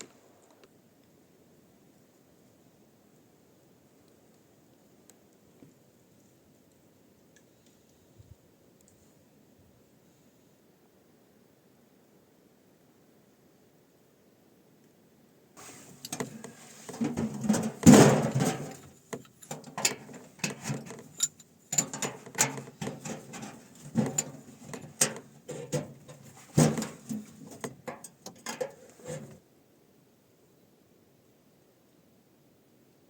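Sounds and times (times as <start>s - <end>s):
knocks clicks and rustling: 15.6s - 29.4s.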